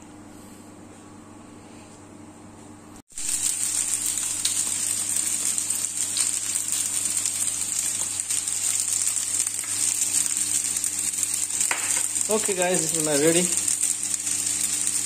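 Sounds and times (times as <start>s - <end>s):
chicken sizzling on grill pan: 3.1s - 15.0s
crackles and pops: 3.1s - 15.0s.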